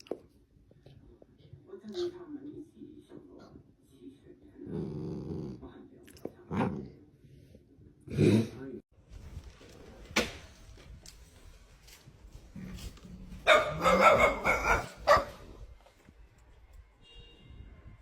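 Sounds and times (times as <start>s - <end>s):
dog barking: 13.4s - 15.5s.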